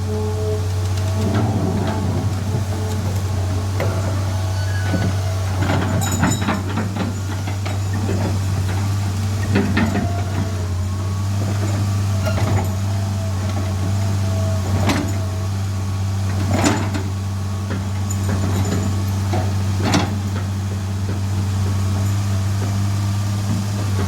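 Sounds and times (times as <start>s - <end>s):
diesel engine idling: 0.0s - 24.0s
metal clanks on metal: 3.1s - 10.4s.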